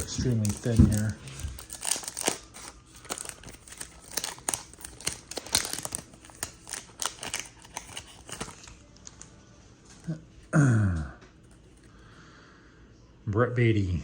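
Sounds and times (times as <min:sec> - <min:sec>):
card pack wrapper tearing: 0:00.0 - 0:09.3.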